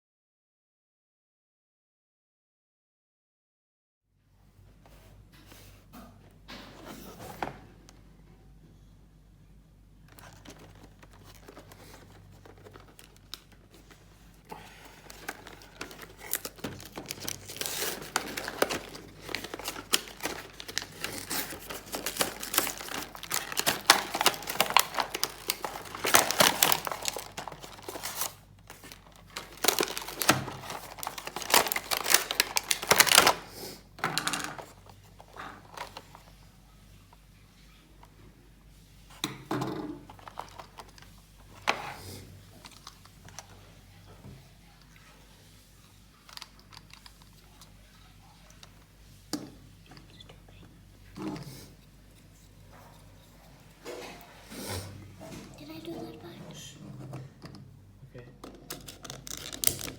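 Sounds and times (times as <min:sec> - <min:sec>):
packaging crinkling and tearing: 0:10.1 - 0:33.5, 0:34.5 - 0:36.3, 0:40.0 - 0:41.8, 0:46.2 - 0:47.8, 0:58.7 - 0:59.9.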